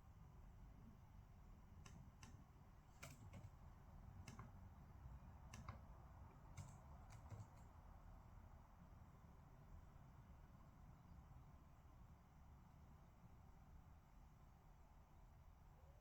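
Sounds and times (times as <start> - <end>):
low room hum: 0.0 - 16.0
faint clicks and taps: 1.8 - 7.8.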